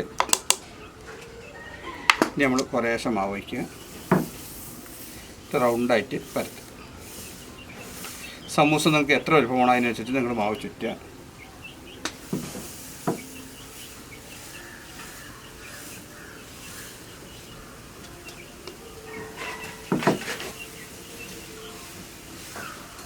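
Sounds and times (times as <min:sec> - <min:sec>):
small birds chirping: 0:00.0 - 0:23.0
sharp knocks: 0:12.1 - 0:13.4.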